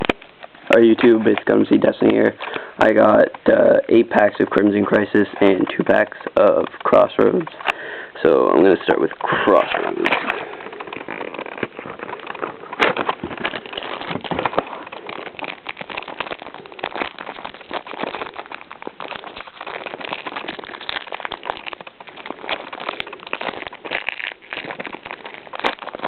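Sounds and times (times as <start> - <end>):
foil wrapper crinkling: 0.0 - 26.0.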